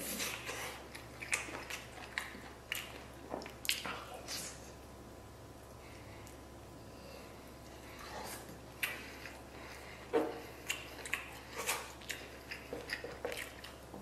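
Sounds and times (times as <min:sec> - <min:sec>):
wet chewing and lip smacks: 0:00.2 - 0:04.6, 0:08.3 - 0:14.0.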